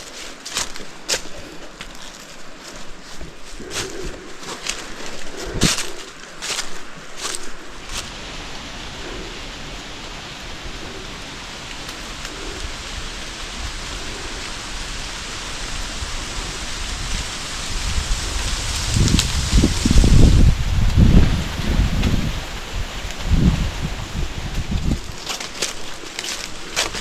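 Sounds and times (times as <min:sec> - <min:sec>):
footsteps: 0:00.0 - 0:14.4, 0:23.0 - 0:27.0
wind buffeting microphone: 0:02.6 - 0:27.0
mountain stream rushing: 0:04.8 - 0:27.0.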